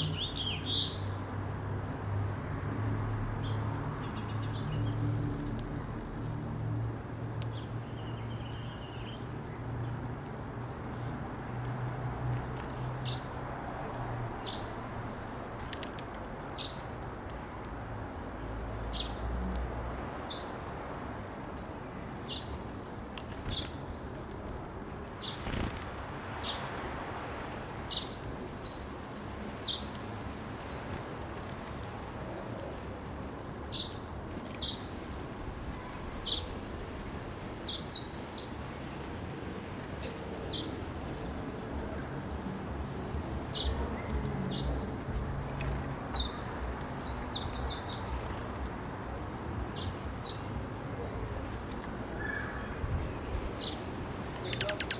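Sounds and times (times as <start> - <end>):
birds chipping: 12.1 - 17.6, 21.6 - 26.9, 39.2 - 54.9.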